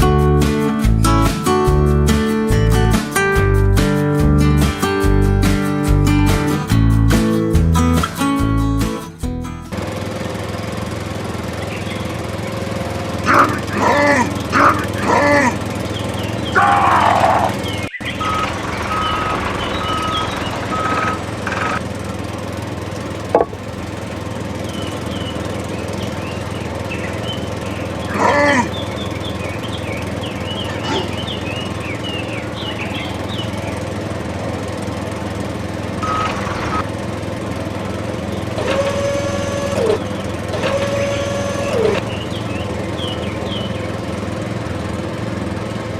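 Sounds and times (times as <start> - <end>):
small motor running: 9.7 - 45.6
birds chirping: 11.5 - 21.8, 23.0 - 34.0, 39.9 - 44.2.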